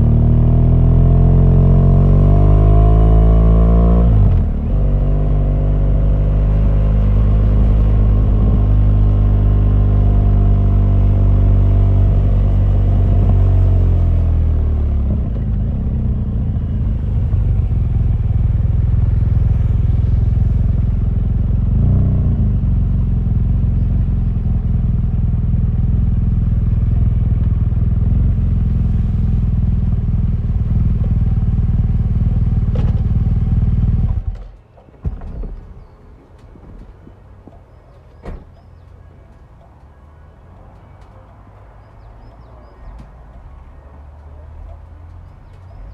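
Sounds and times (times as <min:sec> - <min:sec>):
motorcycle engine revving: 0:00.0 - 0:34.3.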